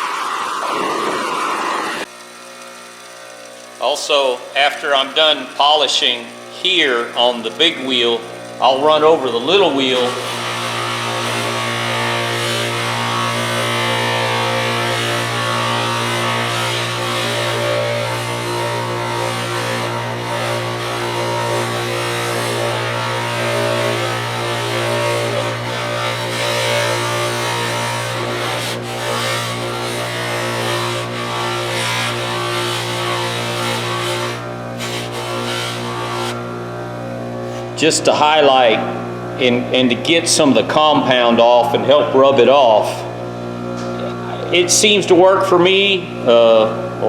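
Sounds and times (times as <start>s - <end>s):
bench buffer motor hum: 0.0s - 44.9s
wrench polishing on buffing wheel: 8.0s - 36.4s, 37.4s - 37.8s.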